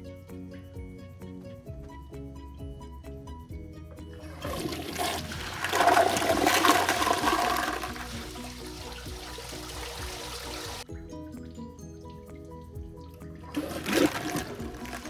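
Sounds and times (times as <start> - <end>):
background music: 0.0 - 15.0
toilet flushing: 4.2 - 10.8, 13.4 - 15.0.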